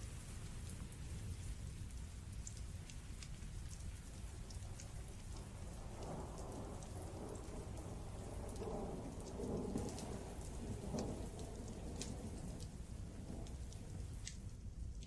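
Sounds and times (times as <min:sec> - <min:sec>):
raindrop ticks: 0:00.0 - 0:15.0
rolling thunder: 0:05.3 - 0:14.6.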